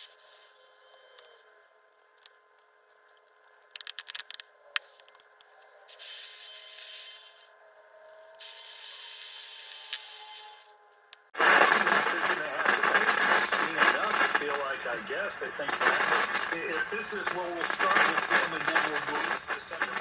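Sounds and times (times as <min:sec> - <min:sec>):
aerosol spray hissing: 0:00.0 - 0:00.6, 0:08.4 - 0:10.7
quick clicks: 0:03.4 - 0:05.5, 0:08.1 - 0:11.3.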